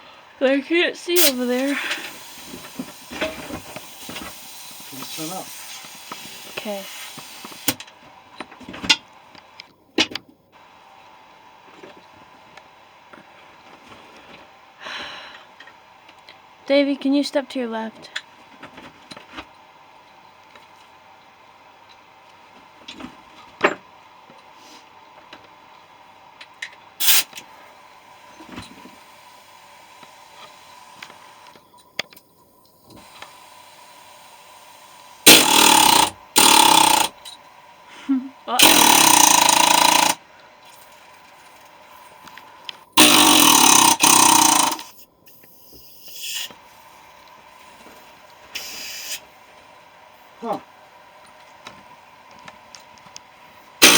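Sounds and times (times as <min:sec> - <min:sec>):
loud hissing burst: 0:01.2 - 0:07.8, 0:27.0 - 0:27.3, 0:35.2 - 0:37.1, 0:48.6 - 0:49.2
pneumatic air hammer: 0:01.2 - 0:07.8, 0:27.0 - 0:27.4, 0:35.2 - 0:37.2, 0:38.6 - 0:40.2, 0:43.0 - 0:46.6, 0:48.5 - 0:49.2.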